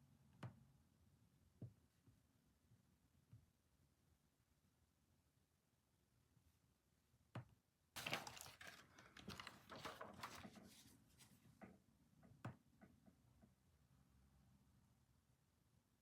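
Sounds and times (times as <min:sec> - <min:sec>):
clicks and rustling on a desk: 0:08.0 - 0:13.2.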